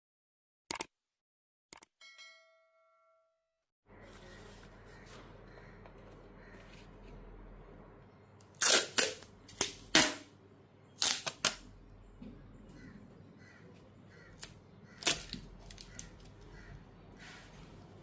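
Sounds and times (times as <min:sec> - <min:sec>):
sharp clicks and snaps: 0:00.7 - 0:00.9.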